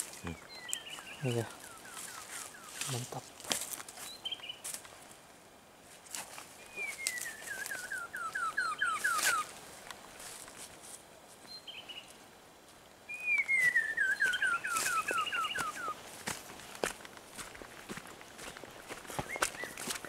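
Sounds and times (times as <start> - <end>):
footsteps on leaf litter: 0.0 - 5.0, 5.9 - 8.1, 8.8 - 11.4, 13.5 - 20.0
bird whistling falling notes: 6.7 - 9.5, 13.1 - 16.0.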